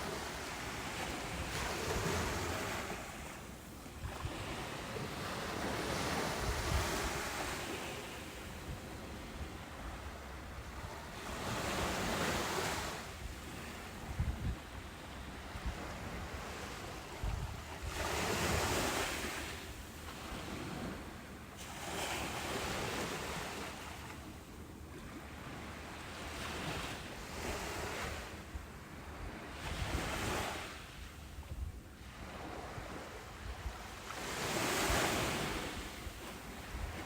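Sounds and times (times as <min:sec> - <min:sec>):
wind buffeting microphone: 0:04.0 - 0:07.8, 0:14.0 - 0:19.6.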